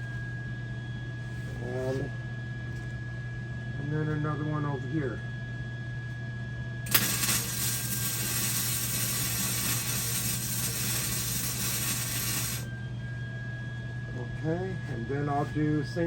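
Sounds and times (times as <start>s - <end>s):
welding arc hissing: 6.9s - 12.7s.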